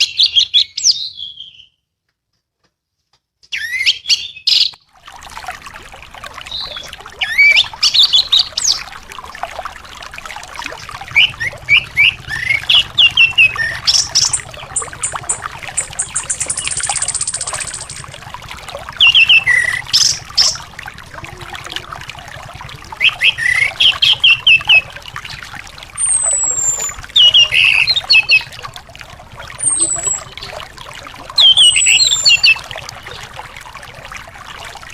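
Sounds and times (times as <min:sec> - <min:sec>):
songbird chirps and whistles: 0:00.0 - 0:01.8, 0:03.5 - 0:04.8, 0:11.1 - 0:18.1, 0:19.0 - 0:20.6, 0:23.0 - 0:24.8, 0:26.0 - 0:28.5, 0:29.6 - 0:30.6, 0:31.4 - 0:32.6
running water trickling: 0:04.8 - 0:34.9.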